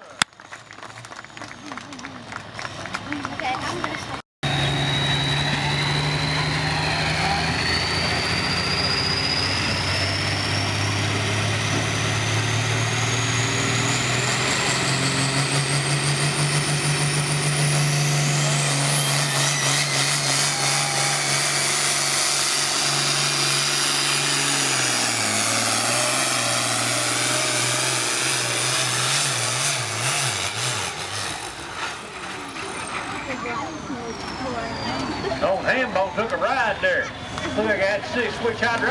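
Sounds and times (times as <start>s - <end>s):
diesel engine at full power: 0.0s - 38.9s
turbocharger whistle: 4.4s - 38.4s.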